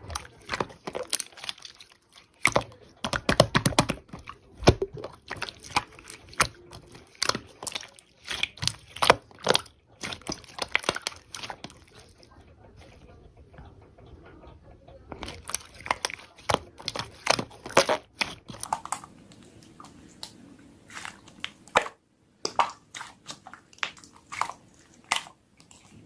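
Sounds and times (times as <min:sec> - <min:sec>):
slime squished by hand: 0:00.0 - 0:12.1, 0:15.1 - 0:19.1.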